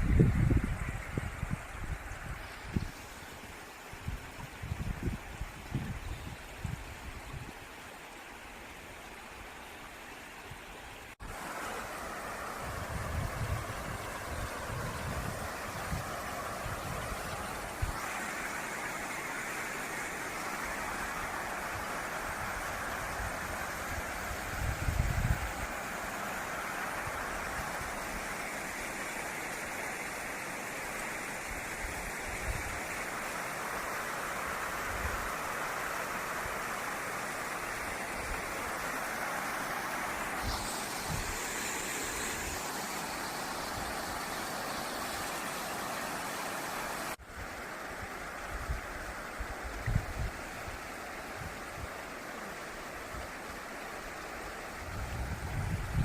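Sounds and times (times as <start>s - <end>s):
wind buffeting microphone: 0.0s - 2.9s, 12.6s - 18.0s, 24.3s - 25.7s, 54.8s - 56.0s
waterfall rushing: 11.0s - 55.3s.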